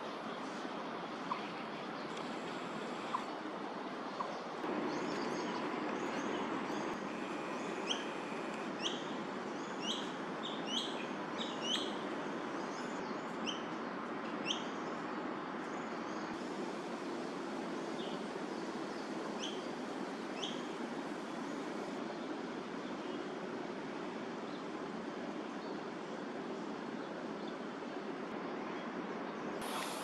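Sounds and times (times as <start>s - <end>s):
traffic hum: 0.0s - 12.7s
bird chirping: 4.2s - 9.1s.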